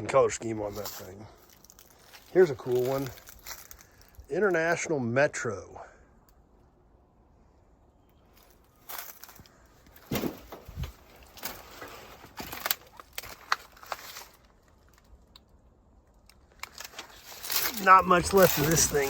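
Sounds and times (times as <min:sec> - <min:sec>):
person moving about on foot: 0:00.4 - 0:04.3, 0:08.3 - 0:15.1.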